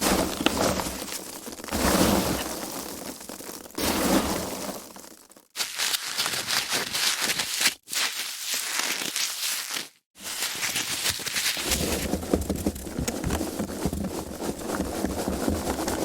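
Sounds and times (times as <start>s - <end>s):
foam packaging crackling: 4.6s - 16.0s.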